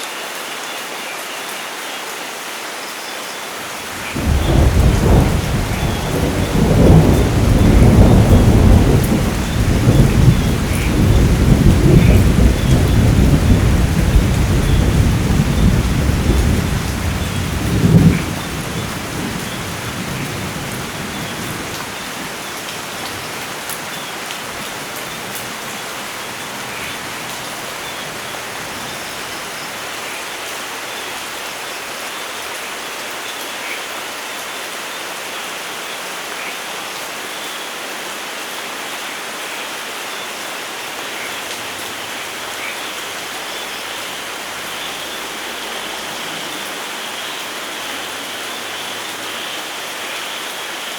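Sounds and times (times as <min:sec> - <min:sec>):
heavy rain on foliage: 0:00.0 - 0:50.9
thunder rumbling: 0:03.8 - 0:30.5.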